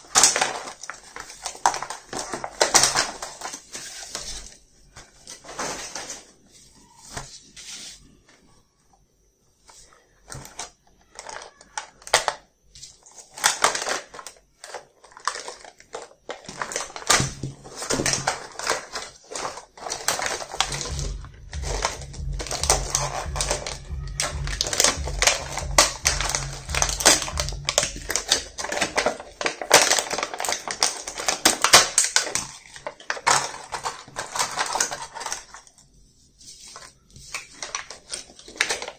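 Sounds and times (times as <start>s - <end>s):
plastic clicking and crackling: 10.2s - 21.0s, 22.5s - 35.8s, 36.8s - 38.9s
low rumble of handling noise: 19.9s - 29.4s.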